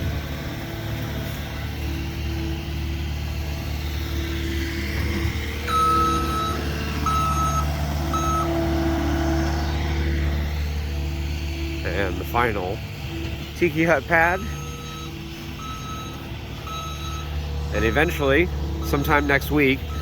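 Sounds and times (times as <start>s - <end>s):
heavy equipment engine droning: 0.0s - 20.0s
reversing alarm beeps: 5.7s - 8.6s, 14.2s - 18.2s, 18.8s - 20.0s.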